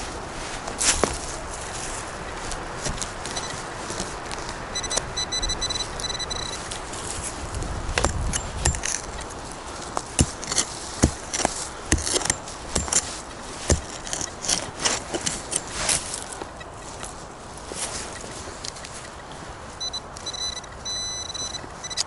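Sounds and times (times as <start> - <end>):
sharp crunches and knocks: 0.0 - 5.1, 6.0 - 19.0
metal detector beeps: 3.2 - 4.0, 4.7 - 6.8, 8.3 - 9.3, 17.9 - 22.0.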